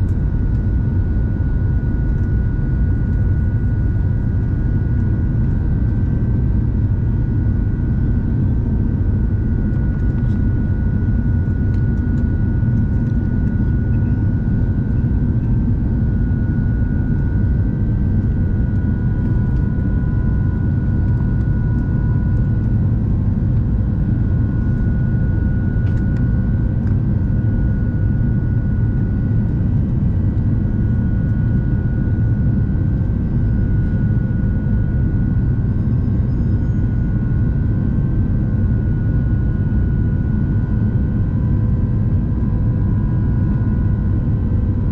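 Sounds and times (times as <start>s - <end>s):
airplane cabin rumble: 0.0s - 44.9s
thin steady whine tones: 0.0s - 44.9s.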